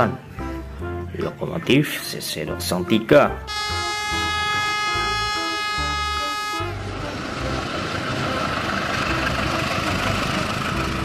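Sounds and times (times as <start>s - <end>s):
locomotive horn blast: 3.4s - 8.6s
train wheels rumbling on rails: 6.6s - 11.0s.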